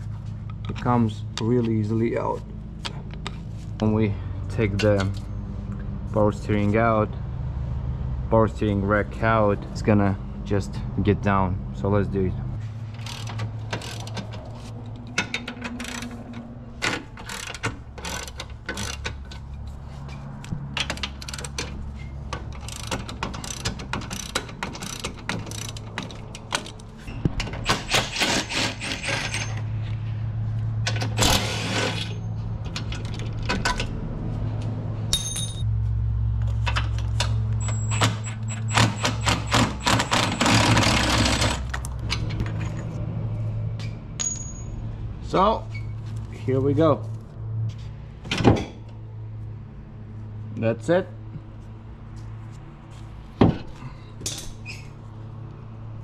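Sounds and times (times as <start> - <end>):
ratchet wrench clicking: 13.0 - 14.3, 15.0 - 16.2, 20.9 - 26.8
metal tools clinking: 20.8 - 29.7, 35.1 - 35.7, 44.2 - 44.8, 54.2 - 54.8.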